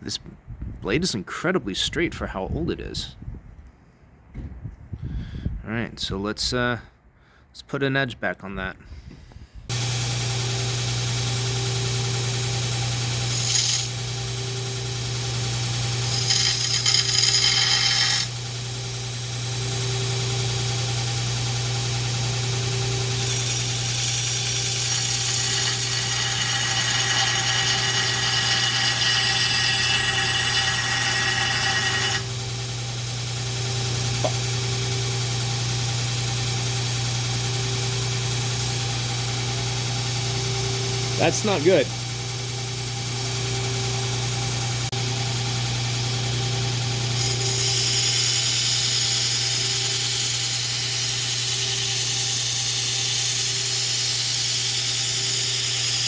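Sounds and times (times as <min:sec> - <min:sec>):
blade grinding on belt: 0:09.7 - 0:32.5, 0:41.2 - 0:41.9, 0:46.2 - 0:56.0
belt grinder humming: 0:09.7 - 0:56.0.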